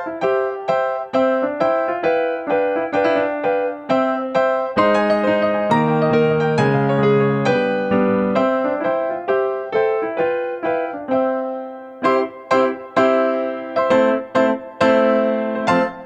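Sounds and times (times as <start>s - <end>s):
piano tune over held chords: 0.0s - 16.0s.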